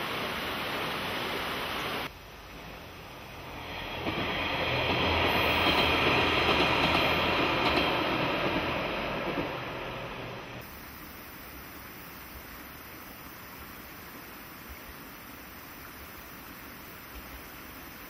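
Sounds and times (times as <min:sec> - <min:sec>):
steady hiss: 0:00.0 - 0:18.0
diesel railcar passing: 0:01.8 - 0:10.8.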